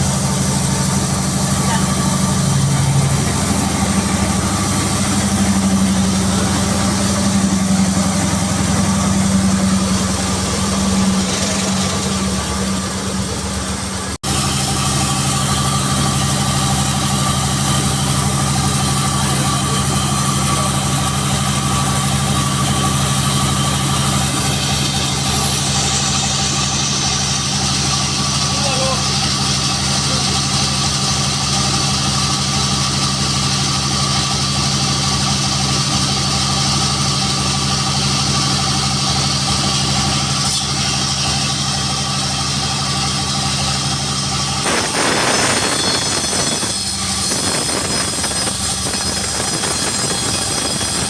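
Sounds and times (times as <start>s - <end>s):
sawmill engine humming: 0.0s - 51.0s.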